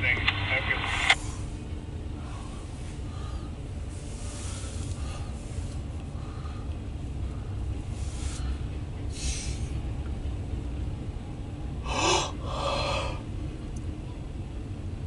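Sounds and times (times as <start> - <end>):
freight train rumble: 0.0 - 15.0
person breathing close to microphone: 2.2 - 9.8, 11.9 - 13.2.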